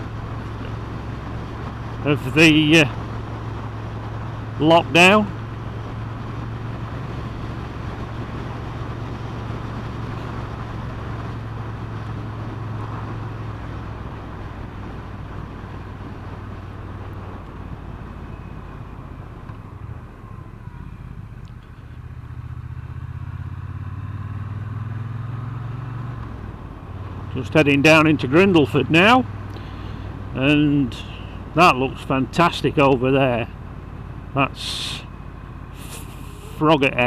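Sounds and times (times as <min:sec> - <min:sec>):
wind rushing over microphone: 0:00.0 - 0:21.4
motorcycle engine running: 0:00.0 - 0:37.0.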